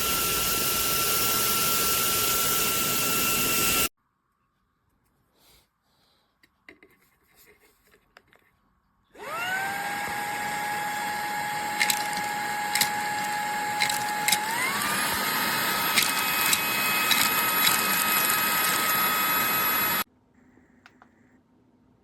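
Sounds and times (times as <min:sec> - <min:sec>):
handheld vacuum motor whine: 0:00.0 - 0:03.9, 0:09.2 - 0:20.1.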